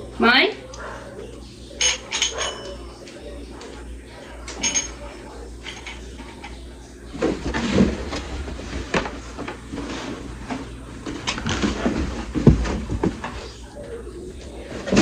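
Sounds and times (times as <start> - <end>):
plastic fan parts knocking: 10.4 - 13.4.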